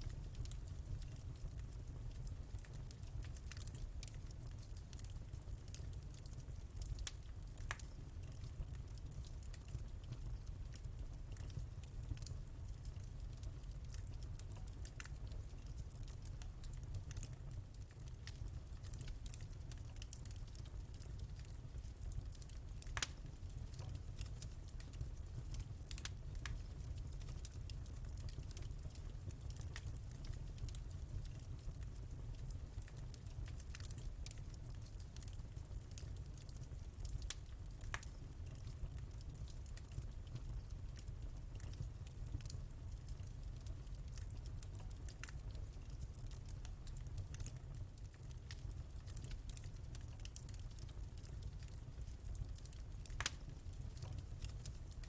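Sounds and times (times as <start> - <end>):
fire crackling and popping: 0.0 - 55.0
fire flames rumbling: 13.5 - 55.0.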